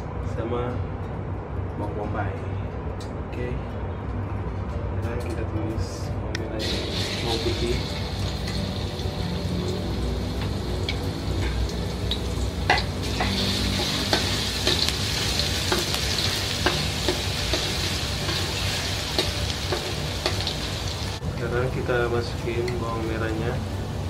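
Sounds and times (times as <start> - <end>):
garlic sizzling in hot oil: 6.6 - 21.2.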